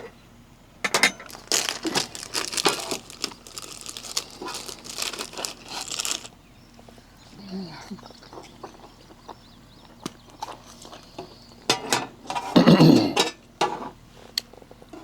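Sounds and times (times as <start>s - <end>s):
packaging crinkling: 1.2s - 6.4s.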